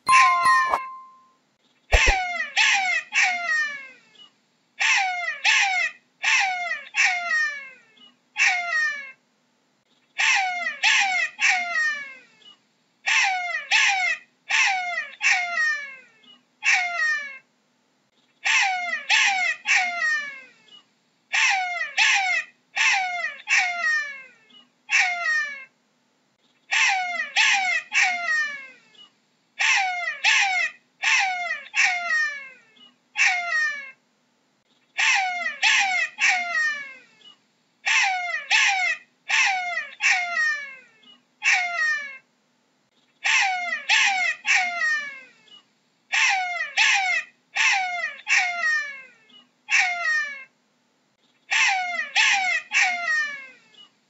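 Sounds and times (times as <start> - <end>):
jackal yelping: 29.6 - 32.5, 35.0 - 37.0, 37.8 - 40.8, 41.4 - 42.2, 43.2 - 45.2, 46.1 - 49.1, 49.7 - 50.4, 51.5 - 53.5.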